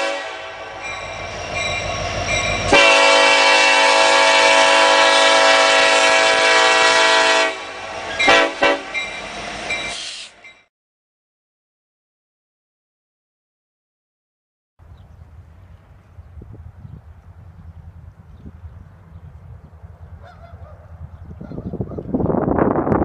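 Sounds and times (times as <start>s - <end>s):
locomotive air horn blasts: 0.0s - 1.0s, 2.5s - 9.0s.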